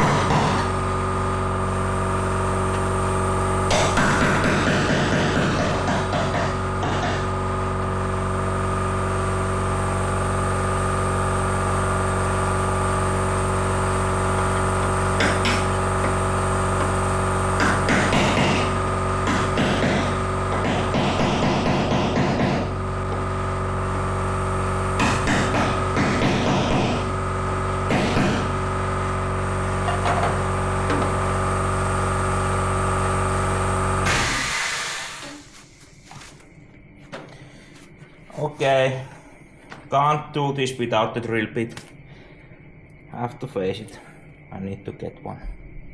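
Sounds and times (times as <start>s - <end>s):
harsh bursts: 0.0s - 35.6s
power tool motor running: 0.0s - 36.3s.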